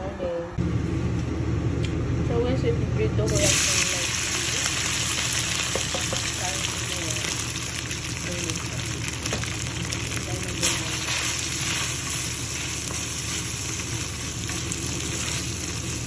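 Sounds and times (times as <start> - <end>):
meat sizzling in hot oil: 3.3 - 16.0
wooden spatula scraping wok: 10.6 - 16.0.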